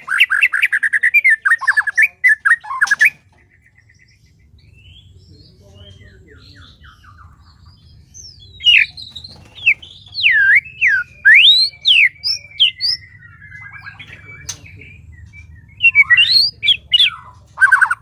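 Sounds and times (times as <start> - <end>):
bird twittering: 0.0 - 18.0
bird whistling notes: 8.6 - 18.0.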